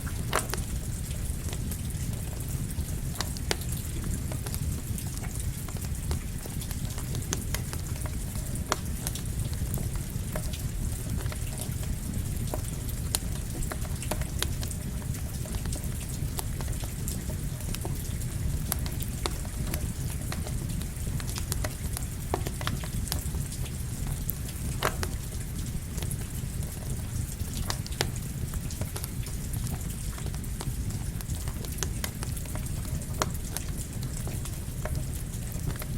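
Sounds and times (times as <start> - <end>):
crackling campfire: 0.0 - 35.9
steady rain: 0.0 - 35.9.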